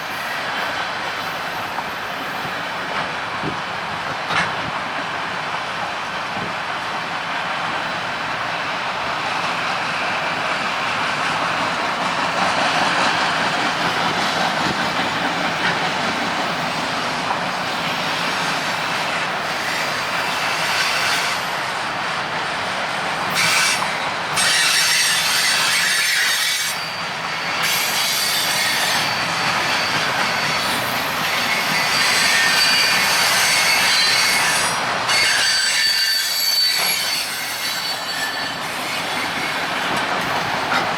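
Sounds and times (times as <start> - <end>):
wheel-on-rail noise: 36.1 - 40.9.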